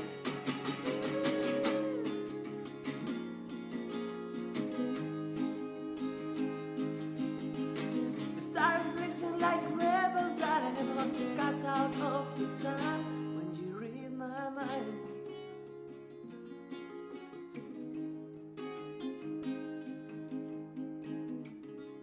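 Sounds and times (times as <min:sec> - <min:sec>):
person singing: 0:00.0 - 0:03.1, 0:08.2 - 0:15.1
acoustic guitar strumming: 0:00.0 - 0:22.0.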